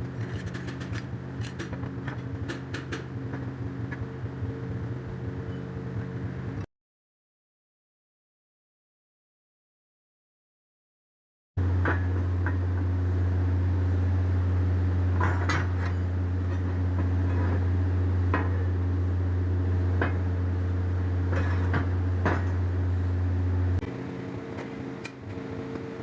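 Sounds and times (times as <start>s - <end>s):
electrical machine hum: 11.6s - 26.0s.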